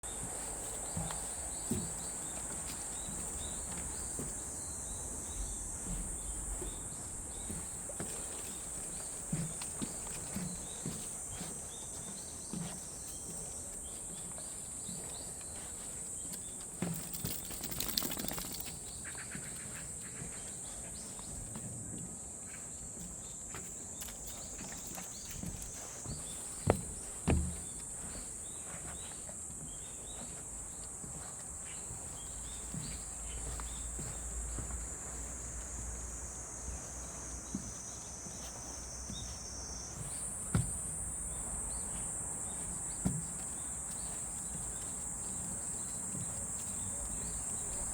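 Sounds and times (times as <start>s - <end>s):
soft footsteps: 0.0s - 21.5s, 23.1s - 47.9s
cicadas buzzing: 0.1s - 21.6s, 22.5s - 47.9s
birds chirping: 16.5s - 21.3s, 41.0s - 47.9s.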